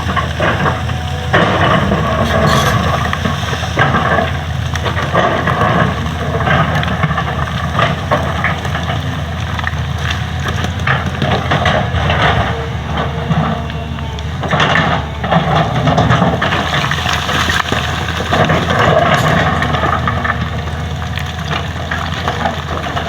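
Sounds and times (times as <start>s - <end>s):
knocks and scrapes of digging: 0.0s - 8.3s
excavator diesel engine running: 0.0s - 23.0s.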